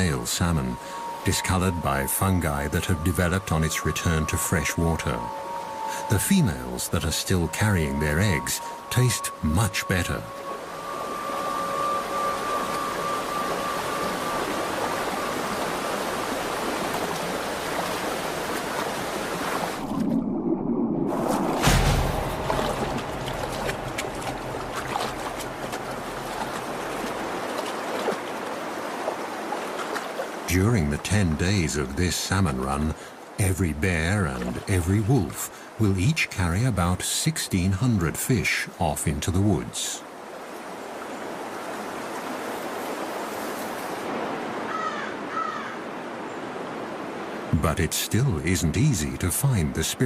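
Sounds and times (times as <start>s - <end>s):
creek water rushing: 0.0s - 20.4s, 21.0s - 50.0s
heavy water splash: 0.8s - 30.5s.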